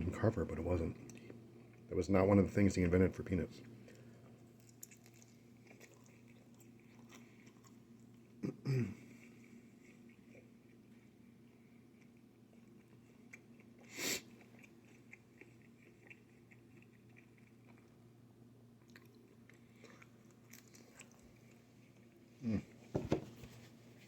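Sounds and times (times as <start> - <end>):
person chewing food: 3.8 - 8.4, 9.1 - 22.8.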